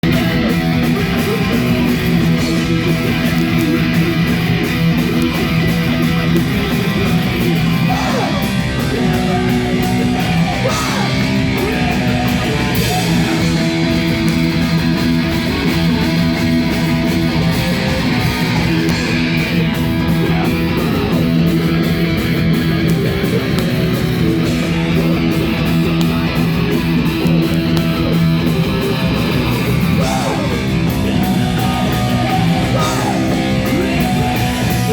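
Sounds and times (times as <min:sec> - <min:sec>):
live rock band playing: 0:00.0 - 0:34.9.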